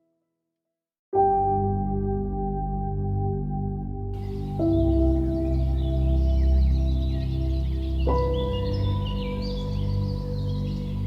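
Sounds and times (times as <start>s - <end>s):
ambient music with ringing tones: 1.3s - 11.0s
low drone: 1.6s - 11.0s
bird chirps: 4.2s - 11.0s.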